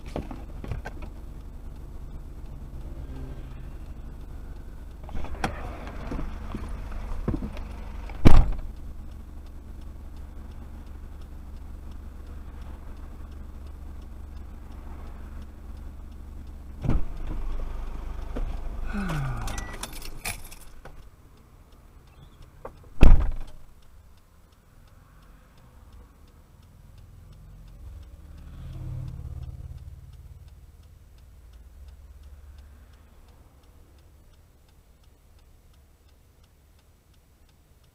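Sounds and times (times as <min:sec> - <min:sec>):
engine running: 0:00.0 - 0:34.5
loud thump: 0:08.2 - 0:08.6, 0:16.8 - 0:17.1, 0:23.0 - 0:23.5.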